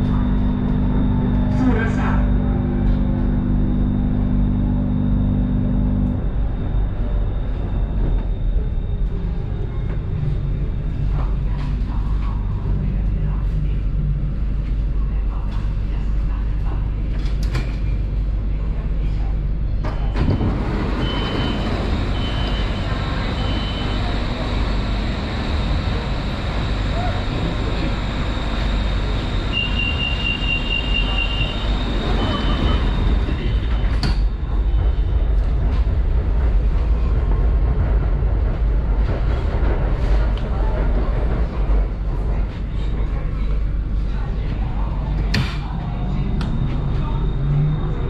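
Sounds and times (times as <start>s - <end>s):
low rumble of running train: 0.0s - 48.0s.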